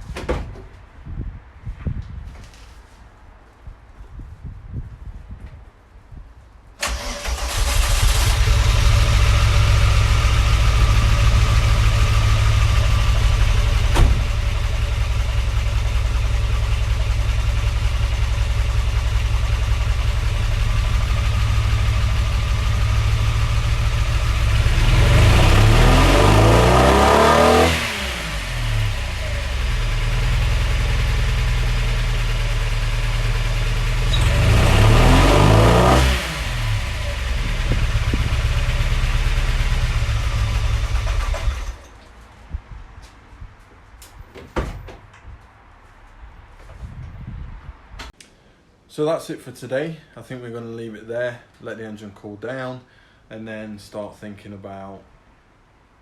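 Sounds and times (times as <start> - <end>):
car engine starting and revving: 6.8 - 41.8.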